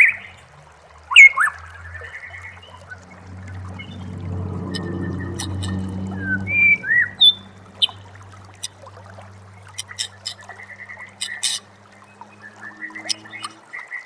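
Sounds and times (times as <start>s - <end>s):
low hum: 1.6s - 13.6s
bird chipping and clicking notes: 9.6s - 11.7s, 12.8s - 13.6s.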